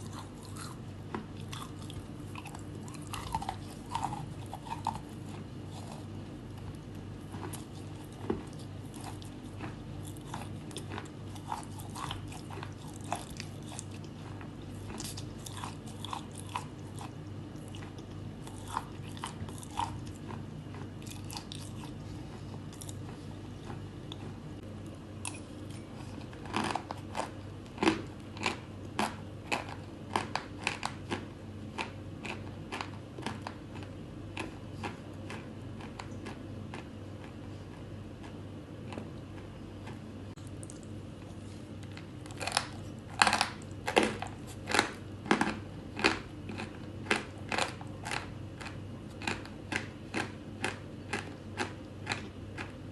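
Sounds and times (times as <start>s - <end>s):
chalk crunching being chewed: 0.0s - 52.8s
steady low hum: 0.0s - 52.9s.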